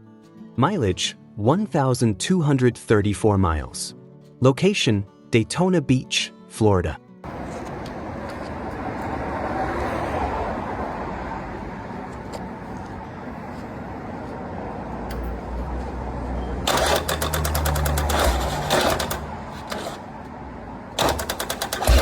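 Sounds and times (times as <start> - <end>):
motorcycle engine rumbling: 16.6 - 20.1, 21.0 - 22.0.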